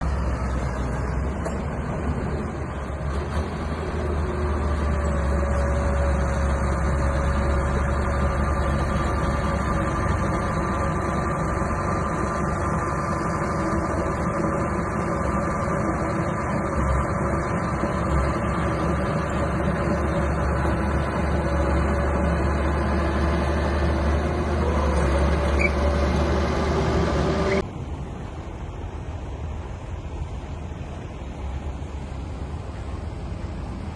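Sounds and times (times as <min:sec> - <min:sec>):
bulldozer diesel engine running: 0:00.0 - 0:33.9.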